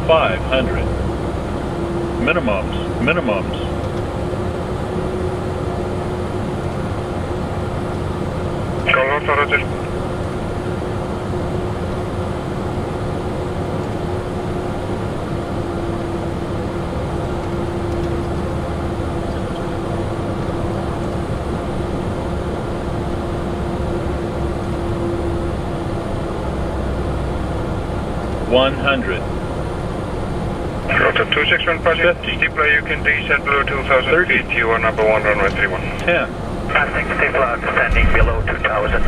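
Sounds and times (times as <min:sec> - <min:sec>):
constant hum: 0:00.0 - 0:39.0
jet engines and airflow rushing: 0:00.0 - 0:39.0.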